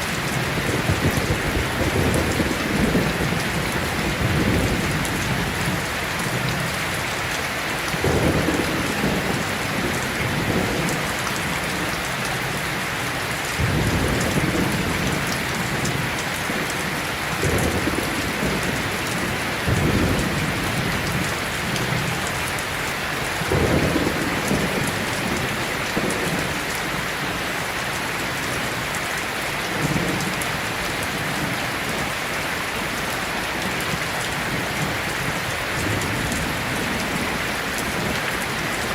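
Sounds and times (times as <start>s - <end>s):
low thunder rumbles: 0.0s - 12.6s, 13.6s - 27.4s
heavy rain falling: 0.0s - 38.9s.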